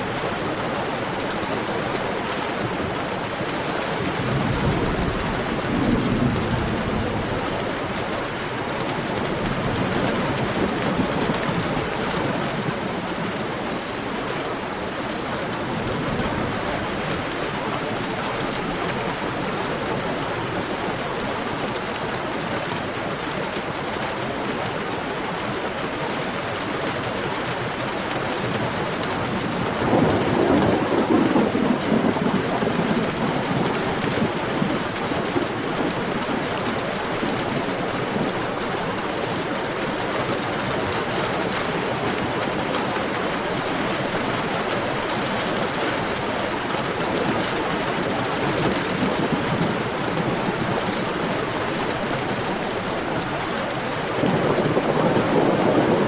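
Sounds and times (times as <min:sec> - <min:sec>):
heavy rain: 0:00.0 - 0:56.0
thunder rumble: 0:28.4 - 0:36.4, 0:47.9 - 0:56.0.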